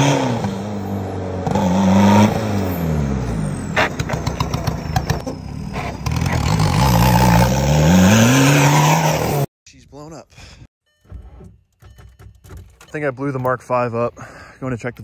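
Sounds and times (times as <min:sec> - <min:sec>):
car engine revving: 0:00.0 - 0:09.5.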